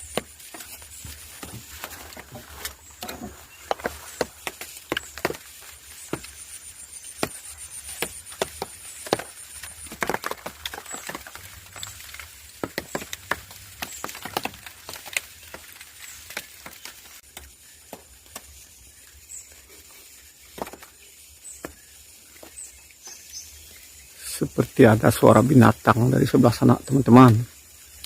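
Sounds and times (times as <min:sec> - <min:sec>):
sticks knocking and snapping: 0:00.0 - 0:06.4, 0:07.2 - 0:18.5.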